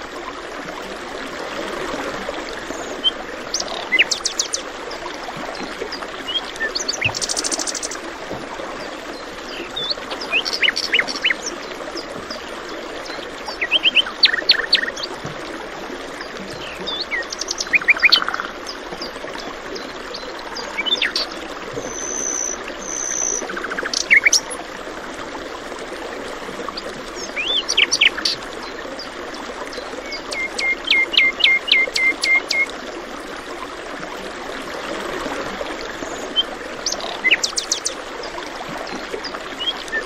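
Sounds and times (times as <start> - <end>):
flowing water rushing: 0.0 - 40.0
birds chirping and trilling: 36.3 - 38.0.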